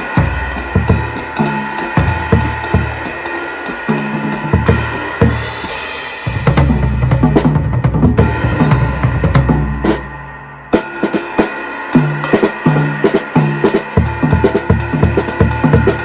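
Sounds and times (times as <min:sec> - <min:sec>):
drum kit playing: 0:00.0 - 0:16.0
low booming bass drum: 0:02.0 - 0:03.0, 0:06.3 - 0:10.2.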